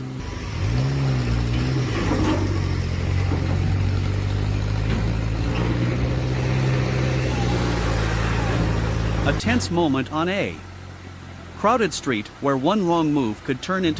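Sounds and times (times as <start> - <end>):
truck engine straining under load: 0.0 - 13.9.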